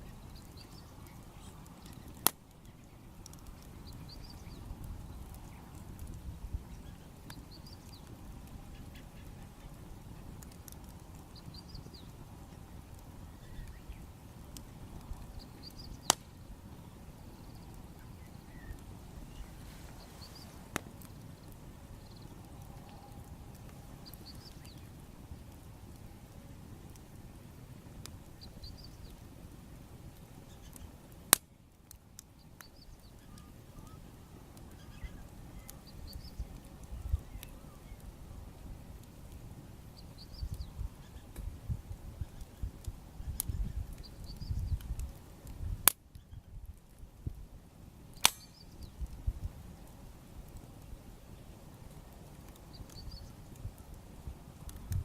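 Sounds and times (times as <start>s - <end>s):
small bird chirping: 0.0s - 5.8s, 17.2s - 20.7s, 48.3s - 49.0s, 52.7s - 53.4s
bonfire crackling and popping: 0.0s - 55.0s.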